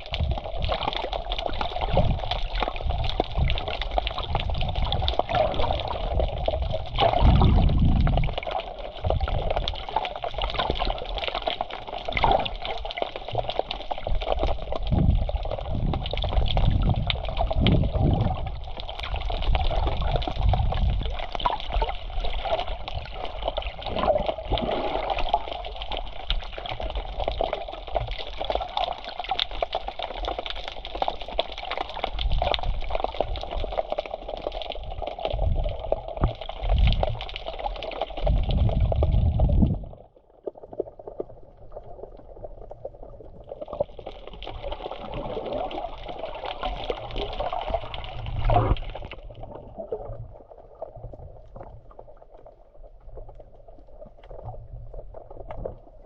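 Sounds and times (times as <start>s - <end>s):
sea water washing at shoreline: 21.7s - 26.9s.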